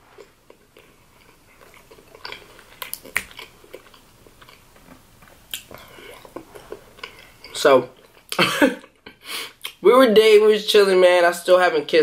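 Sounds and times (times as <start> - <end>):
chewing with wet mouth clicks: 0.2 - 8.4, 9.6 - 9.8.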